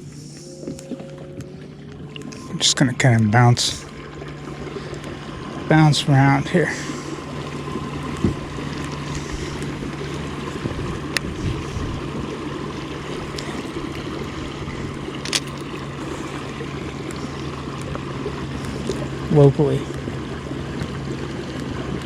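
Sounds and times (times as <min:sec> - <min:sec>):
boat motor humming: 0:00.0 - 0:22.0
water: 0:00.0 - 0:22.0
wind noise: 0:10.5 - 0:15.7.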